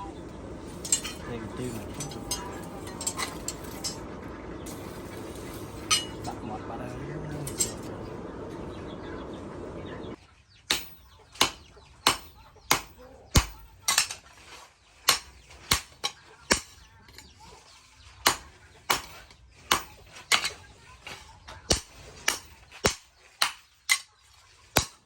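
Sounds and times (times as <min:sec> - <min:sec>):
steady rushing noise: 0:00.0 - 0:10.1
hammer striking steel on anvil: 0:00.7 - 0:04.1, 0:04.7 - 0:06.4, 0:10.7 - 0:14.2, 0:15.1 - 0:16.8, 0:18.3 - 0:20.6, 0:21.7 - 0:24.1, 0:24.8 - 0:25.0.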